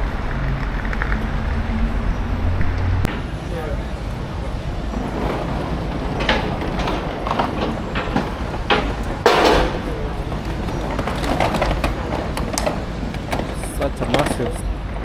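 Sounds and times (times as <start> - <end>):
scattered knocks and clacks: 5.0 - 14.6.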